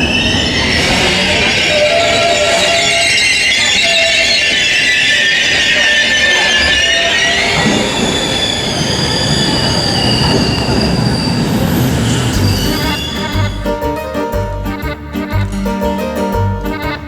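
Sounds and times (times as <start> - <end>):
metallic wheel squeal: 0.0 - 14.1
train running on rails: 0.0 - 17.0
music: 12.3 - 17.0.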